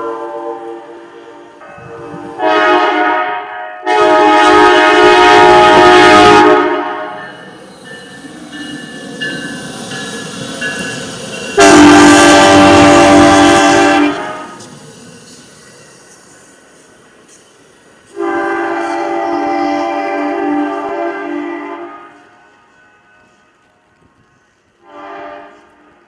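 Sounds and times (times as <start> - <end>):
locomotive air horn blasts: 0.0 - 7.3, 11.6 - 14.6, 18.1 - 24.2, 24.8 - 26.0.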